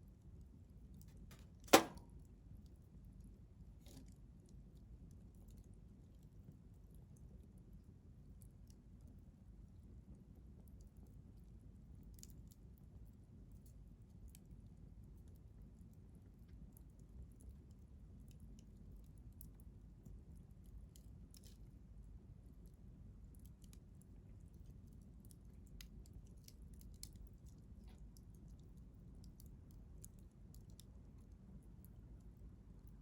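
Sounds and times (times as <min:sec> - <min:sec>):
wood fire crackling: 0:01.0 - 0:02.0, 0:23.6 - 0:33.0.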